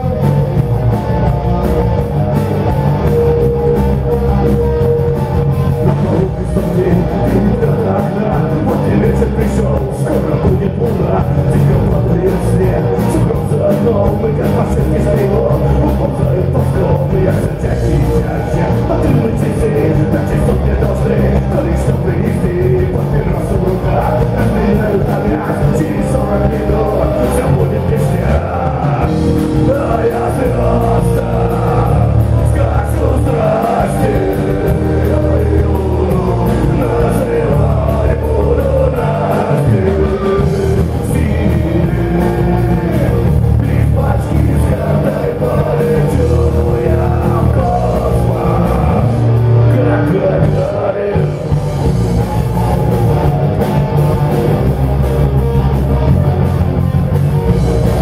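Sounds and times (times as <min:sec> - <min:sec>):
person singing: 0:00.0 - 0:56.6
live rock band: 0:00.0 - 0:58.0.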